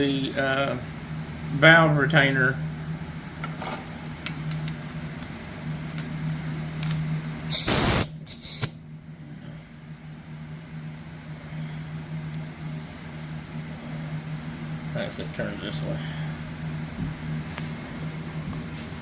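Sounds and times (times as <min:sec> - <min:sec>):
steady low hum: 0:00.0 - 0:19.0
pressurized spray hissing: 0:07.5 - 0:08.8.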